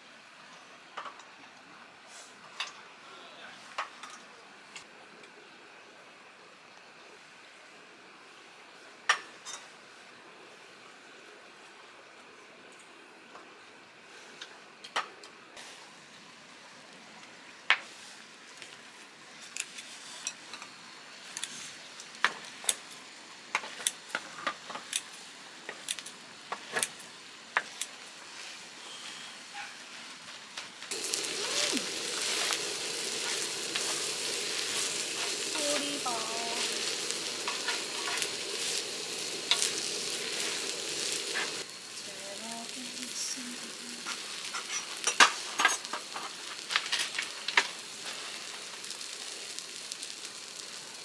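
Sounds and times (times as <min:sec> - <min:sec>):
food sizzling in a pan: 0:15.6 - 0:51.0.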